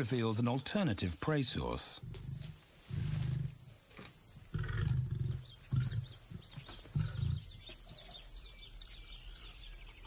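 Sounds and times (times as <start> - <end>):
small birds chirping: 3.8 - 10.0
lion grunting: 4.5 - 6.2, 6.9 - 7.6.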